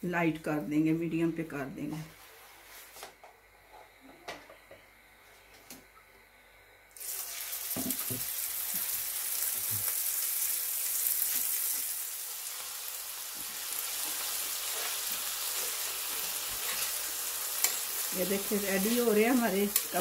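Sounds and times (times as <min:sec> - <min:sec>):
patties sizzling in oil: 0:07.0 - 0:20.0.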